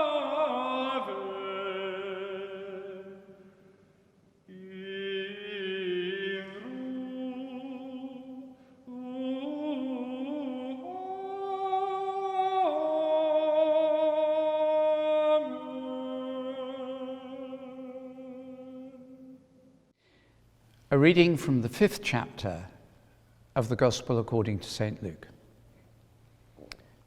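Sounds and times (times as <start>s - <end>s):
person singing long notes: 0.0s - 3.5s, 4.5s - 19.4s.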